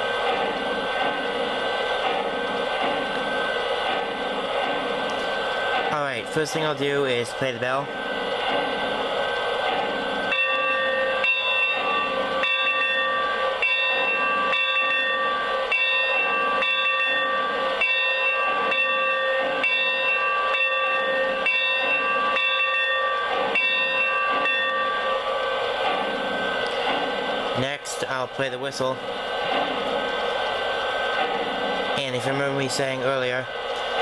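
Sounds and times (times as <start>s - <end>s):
electronic locomotive bell ringing: 9.9s - 25.6s.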